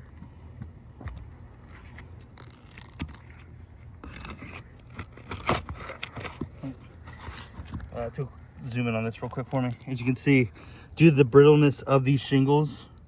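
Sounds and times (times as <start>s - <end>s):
flat bar scraping under shingles: 1.2s - 8.0s.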